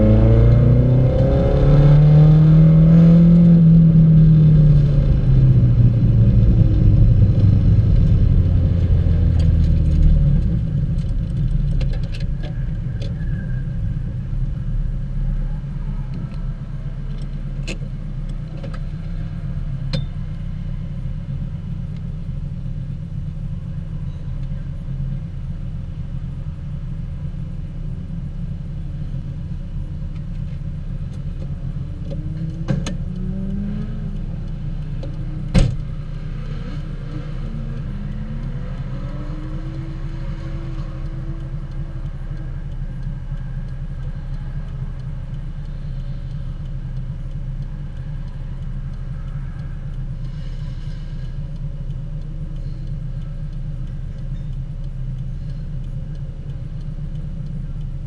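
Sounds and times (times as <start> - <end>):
car engine idling: 0.0 - 58.0
sharp clicks: 30.0 - 58.0.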